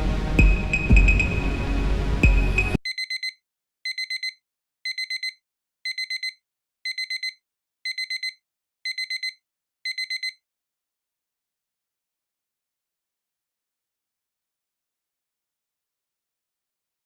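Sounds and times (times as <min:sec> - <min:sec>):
electronic music loop: 0:00.0 - 0:02.8
timer alarm beeping: 0:00.4 - 0:01.5, 0:02.2 - 0:10.4.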